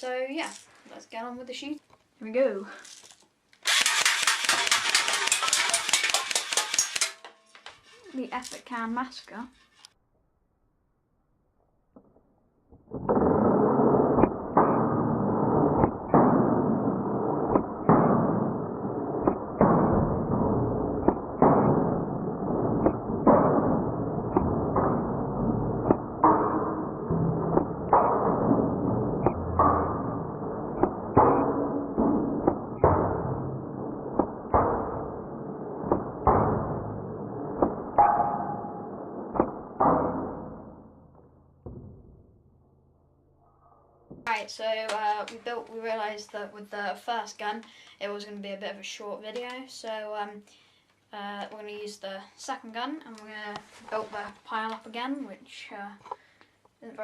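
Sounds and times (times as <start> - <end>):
airsoft gun firing: 3.6 - 7.3, 13.1 - 40.8
sharp hits on cans: 3.6 - 8.0, 19.2 - 40.8.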